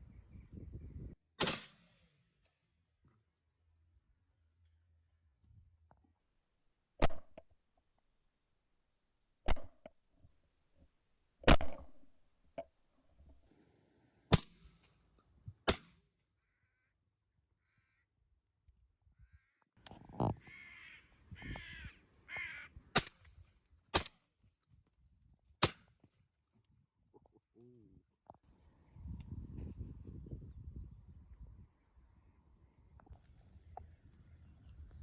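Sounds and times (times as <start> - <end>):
shotgun shots: 1.4 - 2.2, 14.3 - 14.9, 15.7 - 16.0, 23.0 - 23.2, 24.0 - 24.2, 25.6 - 25.9
crows cawing: 16.4 - 17.0, 17.6 - 18.1, 19.2 - 19.6, 20.2 - 22.8.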